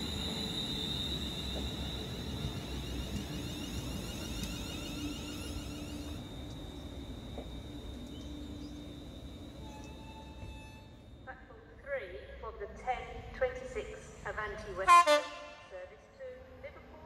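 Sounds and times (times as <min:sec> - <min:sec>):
train rumbling with high whine: 0:00.0 - 0:17.0.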